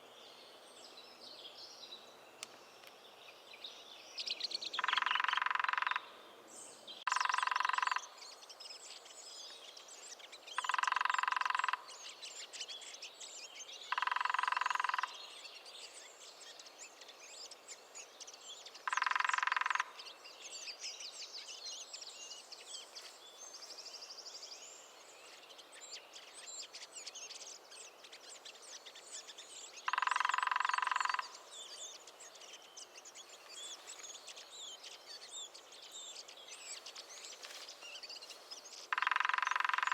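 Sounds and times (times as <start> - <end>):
small birds chirping: 0.0 - 39.9
woodpecker drumming: 4.8 - 6.1, 7.1 - 8.1, 10.6 - 12.0, 13.9 - 15.2, 18.8 - 20.1, 29.8 - 32.0, 38.5 - 39.9.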